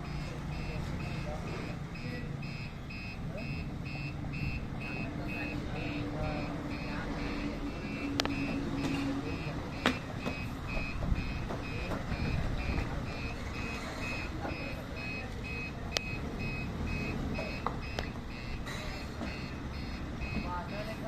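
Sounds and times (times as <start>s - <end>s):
truck engine rumble: 0.0s - 21.0s
truck reversing alarm beeping: 0.0s - 21.0s.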